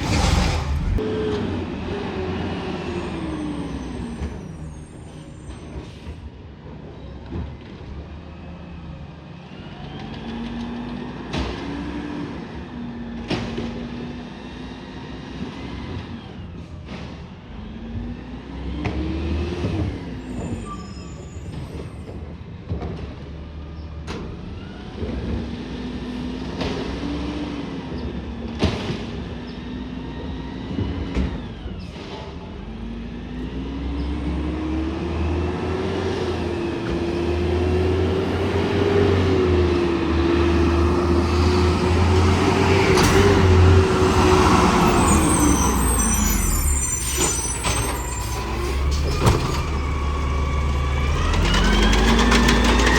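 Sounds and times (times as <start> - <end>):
low rumble: 0.0 - 1.1
diesel engine revving: 0.0 - 5.9, 29.6 - 52.9.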